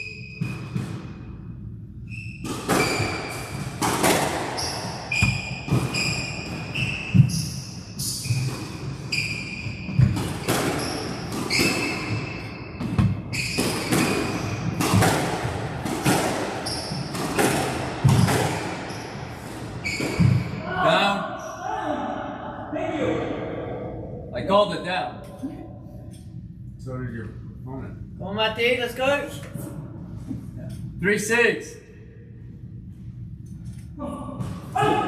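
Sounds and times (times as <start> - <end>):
shoes squeaking on court floor: 2.1 - 3.6, 4.6 - 15.0, 16.6 - 20.6
squash ball smacking: 2.4 - 7.4, 12.8 - 18.9.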